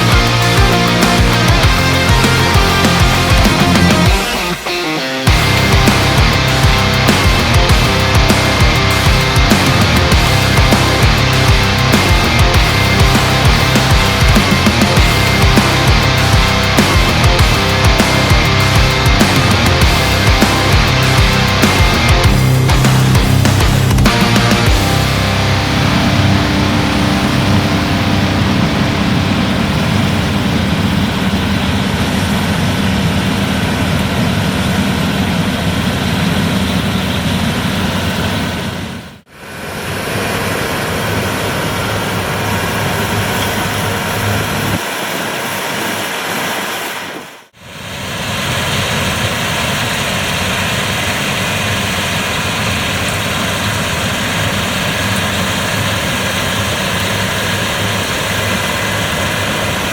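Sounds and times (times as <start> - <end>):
combine harvester droning: 0.0 - 38.5.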